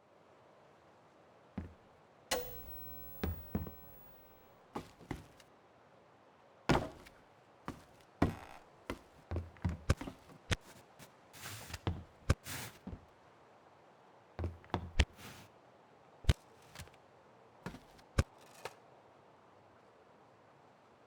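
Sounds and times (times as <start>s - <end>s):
sharp knocks and pops: 2.3s - 4.9s.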